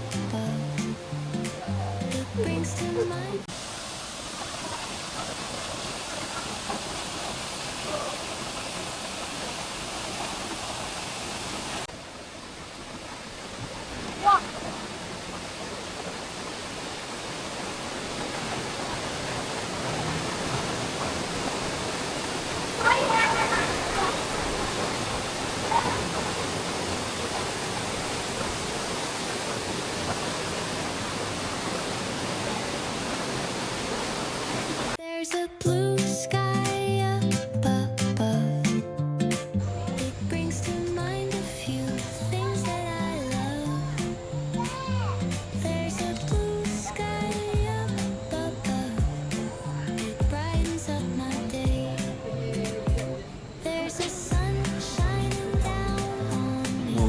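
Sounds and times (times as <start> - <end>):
falling water rushing: 0.0 - 35.0, 39.6 - 57.0
faint voice: 14.2 - 14.5, 22.7 - 24.6.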